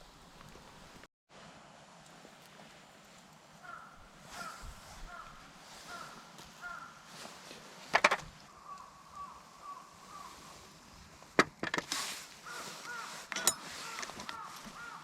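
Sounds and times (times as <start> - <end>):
bird calling: 3.6 - 7.3, 8.4 - 10.8, 12.3 - 15.0.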